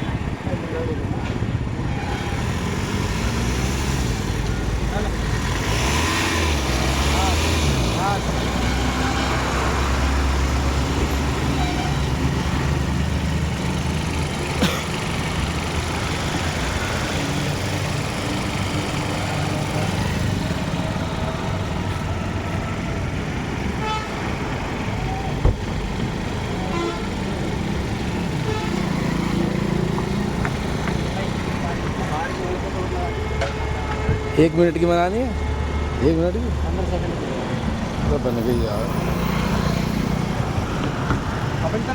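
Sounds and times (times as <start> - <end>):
motor vehicles running: 0.0 - 41.9
car horns honking: 5.0 - 12.8, 18.8 - 25.5, 26.6 - 30.0, 31.9 - 37.2.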